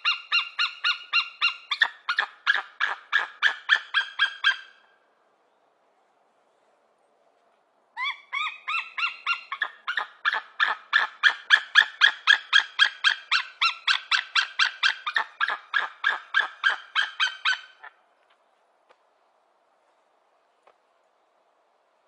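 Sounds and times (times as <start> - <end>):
eagle calling: 0.0 - 4.9, 8.0 - 18.0.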